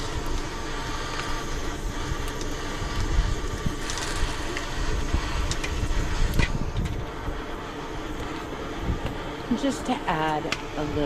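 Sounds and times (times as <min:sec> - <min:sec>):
wind buffeting microphone: 0:01.4 - 0:11.0.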